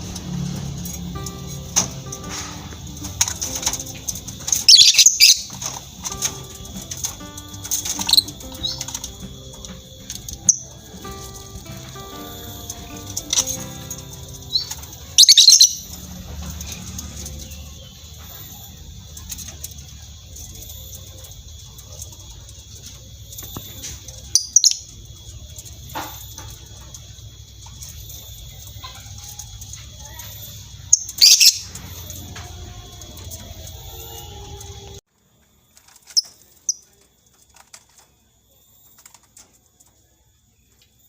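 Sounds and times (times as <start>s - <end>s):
birds twittering: 0.0s - 35.0s
loud bird chirp bursts: 4.5s - 9.5s, 14.2s - 16.0s, 30.4s - 32.1s.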